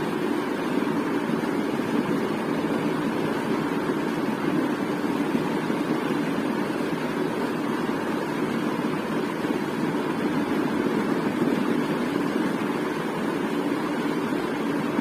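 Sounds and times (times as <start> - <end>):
ceiling fan humming: 0.0 - 15.0.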